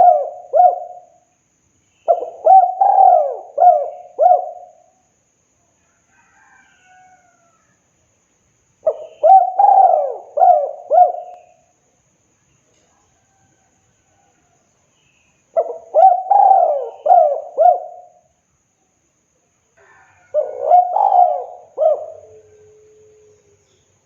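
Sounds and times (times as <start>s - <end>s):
dove cooing: 0.0s - 1.2s, 2.0s - 4.9s, 8.8s - 11.6s, 15.6s - 18.3s, 19.8s - 23.4s.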